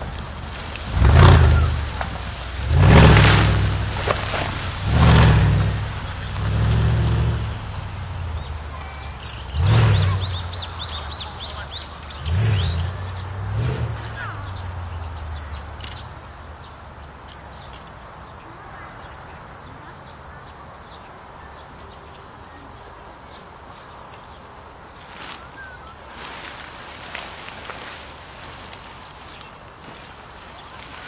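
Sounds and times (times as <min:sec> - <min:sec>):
low rumble: 0:00.0 - 0:16.4
birds chirping: 0:00.0 - 0:31.0.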